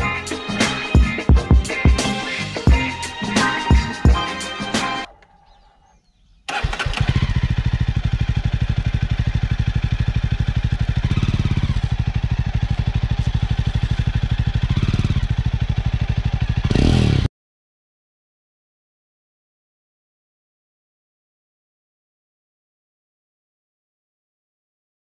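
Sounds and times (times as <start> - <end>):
motorcycle engine idling: 5.1 - 17.3.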